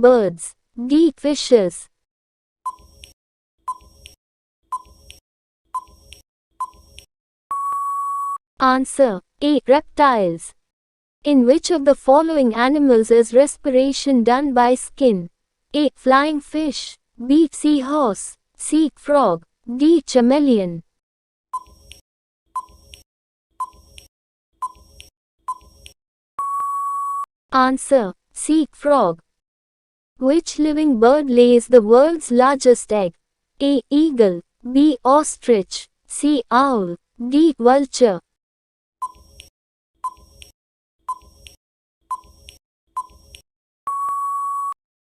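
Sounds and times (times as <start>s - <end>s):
short timer beeps: 2.7s - 3.1s, 5.8s - 8.4s, 21.6s - 21.8s, 26.4s - 27.3s, 39.0s - 40.5s, 41.1s - 44.8s
long steady beep: 7.5s - 8.4s, 26.4s - 27.3s, 43.9s - 44.8s.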